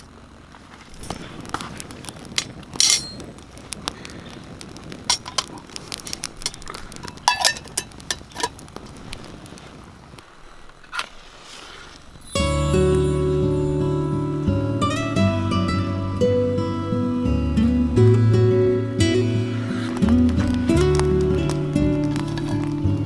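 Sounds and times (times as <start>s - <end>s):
small hard objects clicking: 1.0s - 9.2s, 19.9s - 23.0s
ringing metallic clink: 2.8s - 3.3s.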